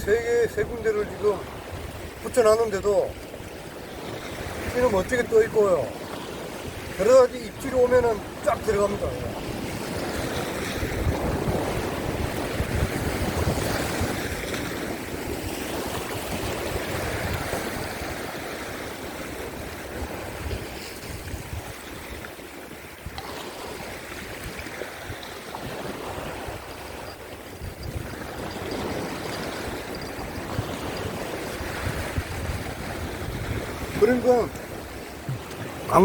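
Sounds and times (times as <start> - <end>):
waves breaking against rocks: 0.0 - 36.0
wind buffeting microphone: 0.0 - 36.0.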